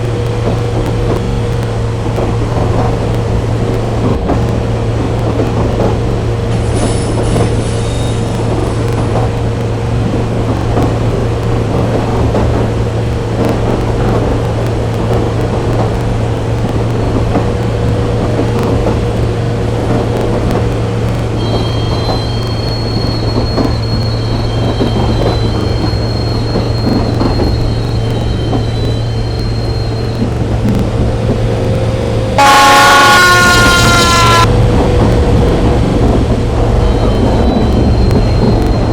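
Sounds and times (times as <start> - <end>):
train rumbling on rails: 0.0 - 38.9
high wheel squeal: 6.6 - 9.4, 21.3 - 30.7, 36.6 - 38.9.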